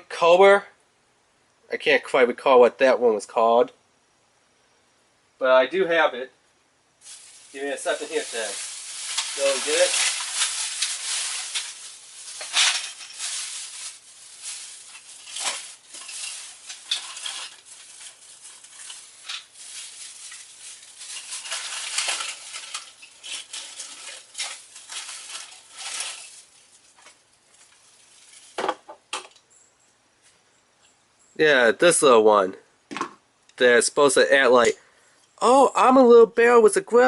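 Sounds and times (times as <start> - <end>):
plastic toy parts clattering: 7.1 - 29.4.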